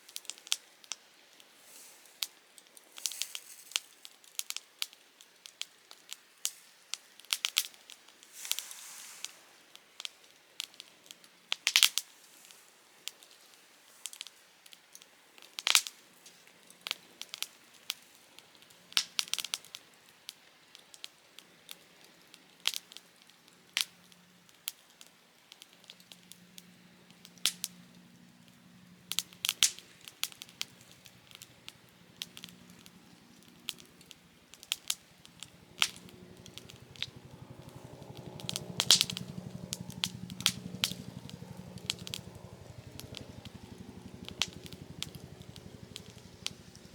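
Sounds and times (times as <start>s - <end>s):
campfire crackling: 2.0s - 6.1s, 7.2s - 46.9s
burning wood popping: 18.6s - 19.8s, 22.6s - 46.9s
low pulsing droning hum: 26.2s - 46.9s.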